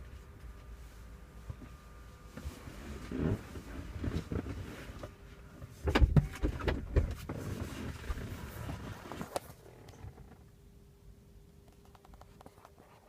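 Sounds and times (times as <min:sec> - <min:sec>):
faint steady hum: 0:00.0 - 0:13.0
dull knocks and clunks: 0:05.8 - 0:07.4.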